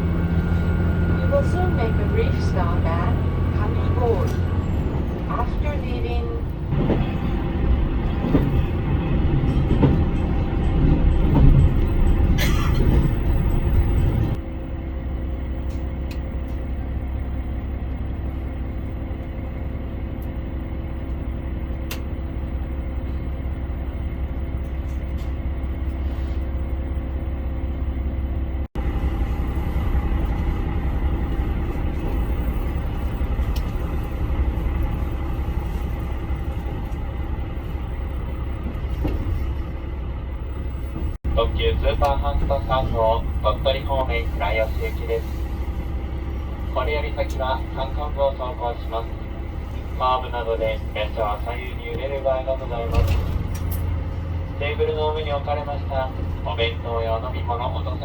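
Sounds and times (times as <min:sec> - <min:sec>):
railcar engine rumble: 0:00.0 - 0:58.0.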